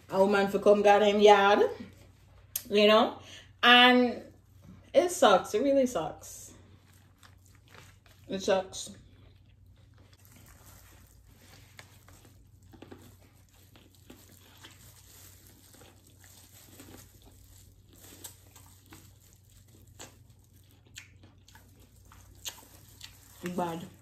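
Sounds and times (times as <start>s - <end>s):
plastic glove crinkling: 6.6s - 8.8s, 9.5s - 24.0s
chewing corn on the cob: 6.7s - 8.3s, 8.9s - 24.0s.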